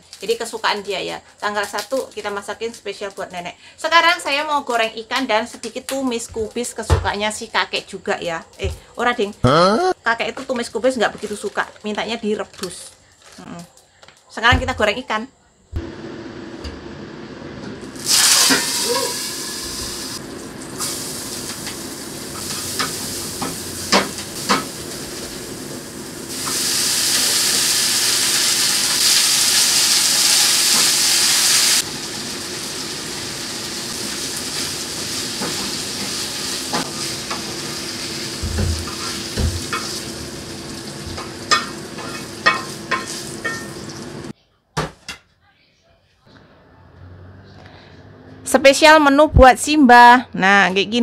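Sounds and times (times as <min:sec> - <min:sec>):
fish sizzling in hot oil: 0:17.9 - 0:44.3
cooking utensil clinking: 0:18.3 - 0:19.5, 0:41.2 - 0:43.8.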